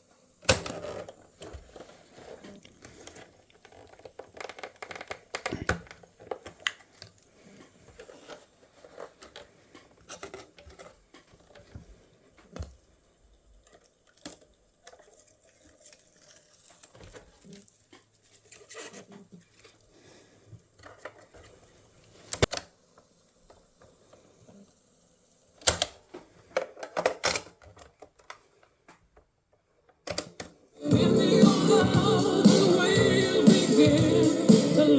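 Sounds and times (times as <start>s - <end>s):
rustling of handled objects: 0.7s - 12.9s.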